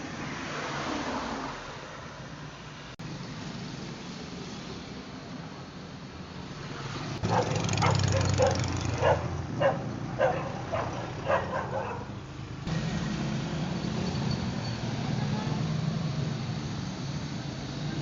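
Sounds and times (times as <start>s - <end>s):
dog barking: 7.2s - 12.2s.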